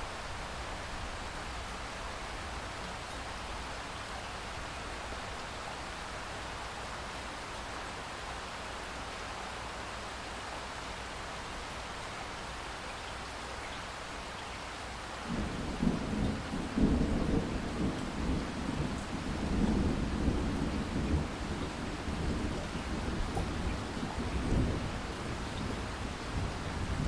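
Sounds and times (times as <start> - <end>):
steady rain hissing: 0.0 - 27.0
thunder rumbling: 15.3 - 27.0.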